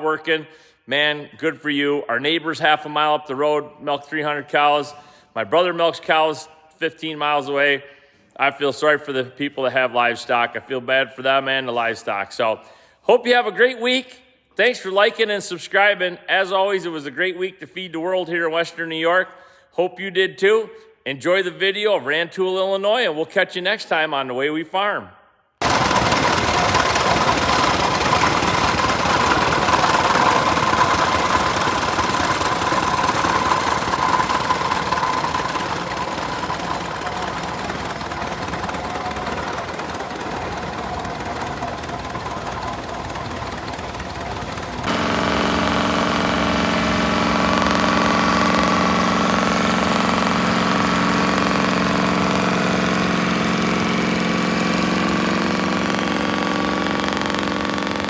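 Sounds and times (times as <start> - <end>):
steady engine drone: 25.6 - 58.0
tractor engines running: 25.6 - 58.0.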